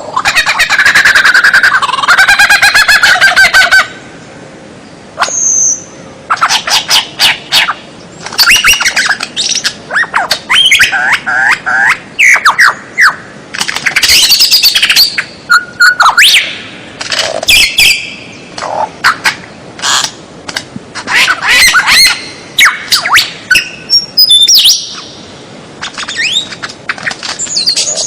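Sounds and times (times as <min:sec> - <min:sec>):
songbird chirps and whistles: 0:05.2 - 0:13.3, 0:13.9 - 0:16.7, 0:17.5 - 0:19.3, 0:21.1 - 0:25.2, 0:25.8 - 0:28.0.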